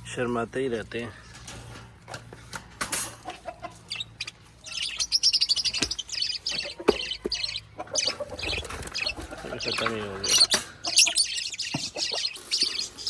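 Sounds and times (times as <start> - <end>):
lovebirds chirping: 3.2 - 13.0.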